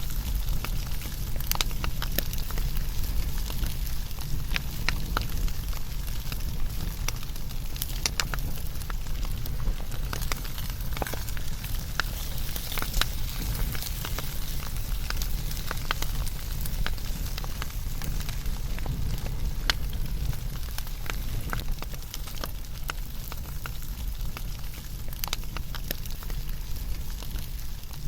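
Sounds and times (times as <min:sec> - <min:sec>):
low rumble of flames: 0:00.0 - 0:28.0
wood fire crackling and popping: 0:00.0 - 0:28.0.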